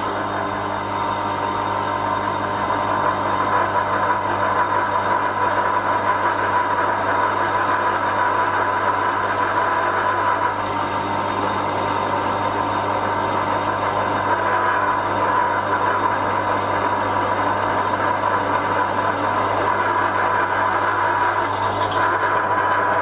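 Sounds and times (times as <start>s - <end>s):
electric motor hum and whine: 0.0s - 23.0s.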